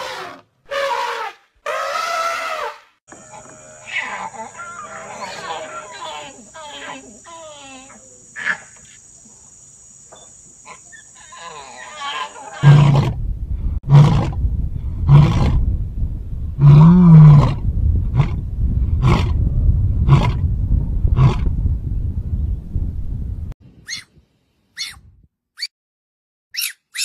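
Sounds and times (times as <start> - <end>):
lion roaring and grunting: 11.3 - 13.2, 13.8 - 15.6, 16.6 - 18.4, 19.0 - 19.4, 20.0 - 20.4, 21.1 - 21.5.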